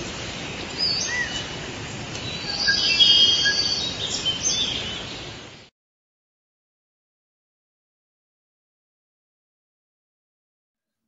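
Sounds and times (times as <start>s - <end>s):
birds whistled chirps: 0.0s - 1.6s, 2.2s - 5.3s
steady background hiss: 0.0s - 5.7s.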